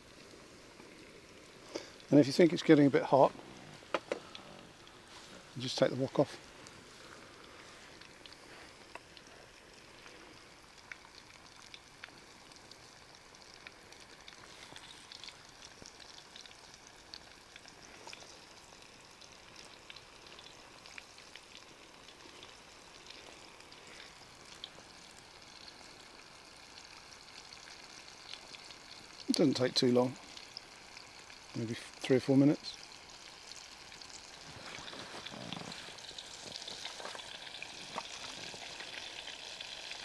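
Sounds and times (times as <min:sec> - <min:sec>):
chicken deep-frying in oil: 0:00.0 - 0:40.0
oil popping and crackling: 0:00.0 - 0:40.0.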